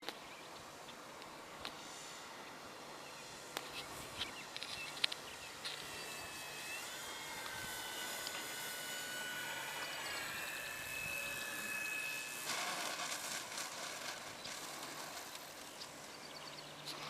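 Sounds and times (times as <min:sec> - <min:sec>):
electric model airplane motor whine: 0:00.0 - 0:17.0
outdoor background noise: 0:00.0 - 0:17.0.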